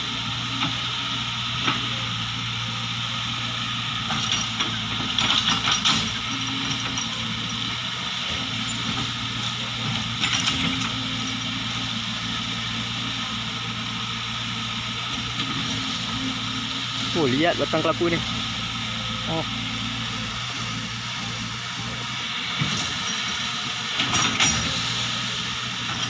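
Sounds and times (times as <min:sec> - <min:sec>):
chainsaw idling: 0:16.9 - 0:21.9.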